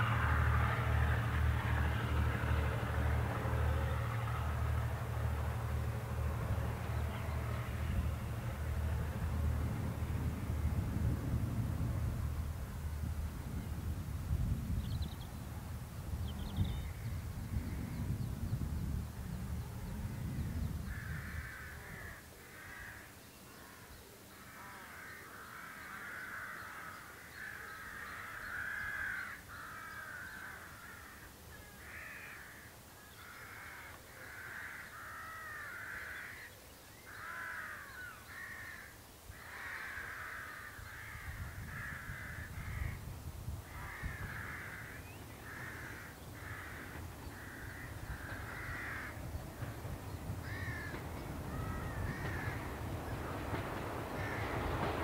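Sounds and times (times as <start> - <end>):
diesel locomotive engine rumble: 0.0 - 22.2, 40.0 - 55.0
birds calling harshly: 20.6 - 43.0, 43.7 - 55.0.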